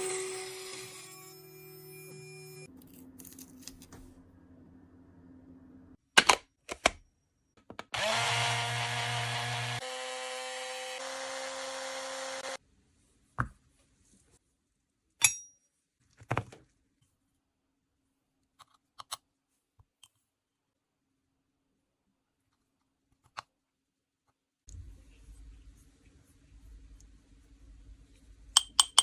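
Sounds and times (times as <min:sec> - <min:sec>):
small electric motor running: 0:00.0 - 0:02.7, 0:08.0 - 0:12.6.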